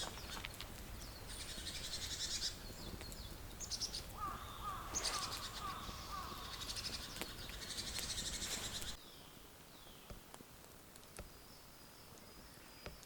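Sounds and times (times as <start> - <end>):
birds calling: 0.0 - 10.2
dense crackling hiss: 0.0 - 13.0.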